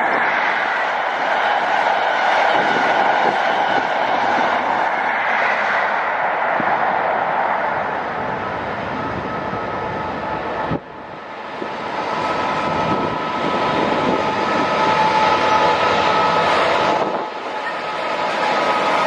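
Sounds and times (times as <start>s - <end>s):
train whine and rail noise: 0.0s - 19.0s.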